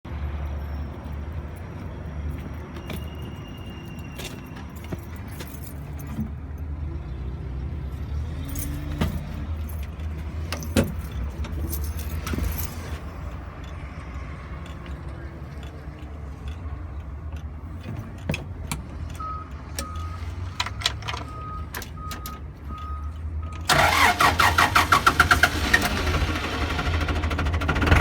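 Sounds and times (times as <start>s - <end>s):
diesel tractor engine idling: 23.7s - 28.0s.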